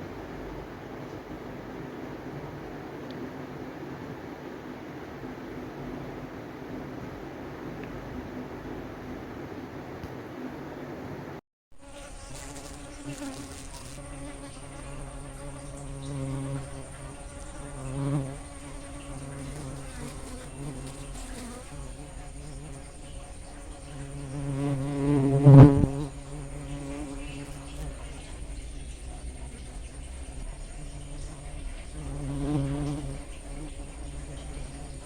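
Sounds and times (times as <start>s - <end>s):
bees buzzing: 11.8s - 35.0s.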